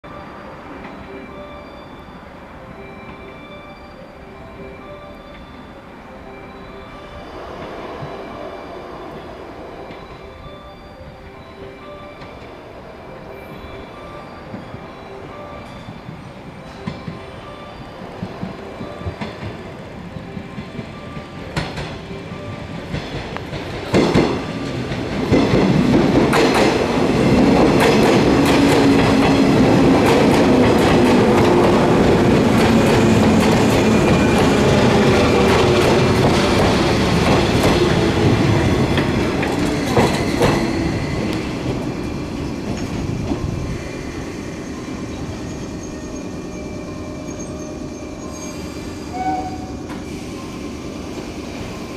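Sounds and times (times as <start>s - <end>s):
electric train running: 15.7s - 51.9s.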